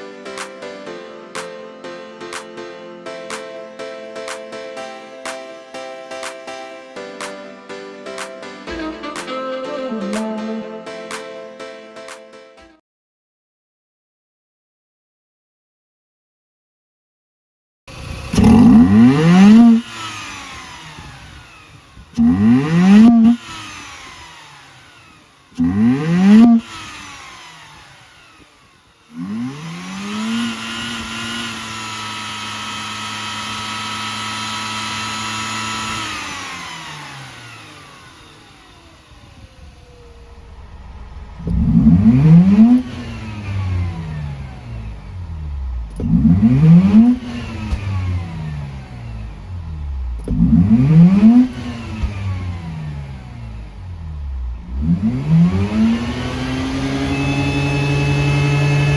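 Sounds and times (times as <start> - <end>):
rotary engine revving: 17.9 - 58.9.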